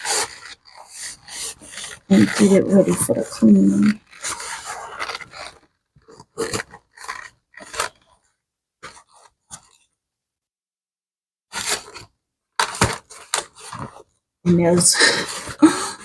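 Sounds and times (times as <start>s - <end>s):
scratchy rubbing on leather: 0.0s - 9.9s.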